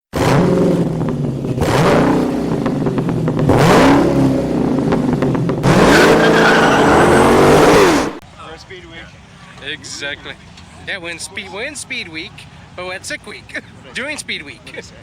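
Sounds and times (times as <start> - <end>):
car engines revving hard: 0.0 - 8.2.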